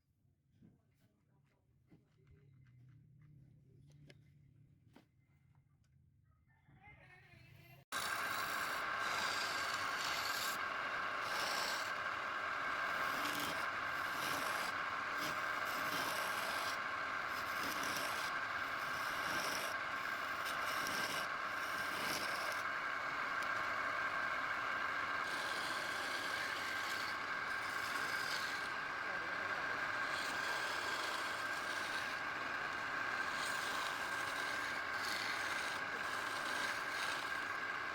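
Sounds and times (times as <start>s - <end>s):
sanding wood rubbing strokes: 7.9s - 37.9s
steady high hum: 7.9s - 37.9s.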